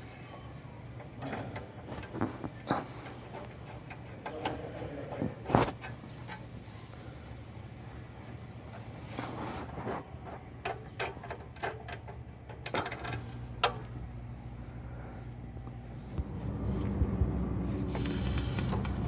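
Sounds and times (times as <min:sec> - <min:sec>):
steady low hum: 0:00.0 - 0:19.0
tools and metal parts knocking: 0:10.6 - 0:13.4.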